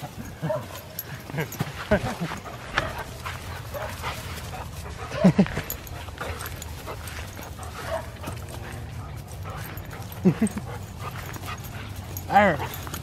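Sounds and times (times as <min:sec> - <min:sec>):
dog barking: 0:00.4 - 0:00.8, 0:03.7 - 0:04.0, 0:07.7 - 0:08.3.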